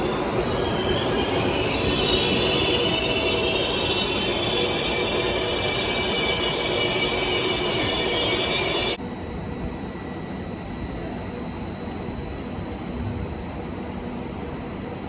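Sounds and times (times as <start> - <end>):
wheels squealing: 0.0 - 9.0
train running: 0.0 - 9.4.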